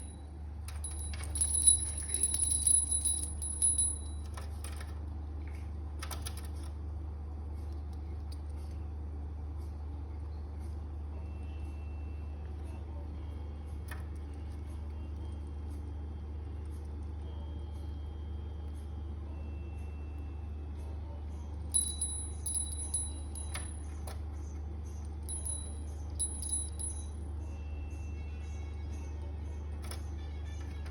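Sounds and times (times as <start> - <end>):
small metal bell jingling: 0.0 - 4.4, 21.7 - 24.0, 25.2 - 27.2
steady low hum: 0.0 - 30.9.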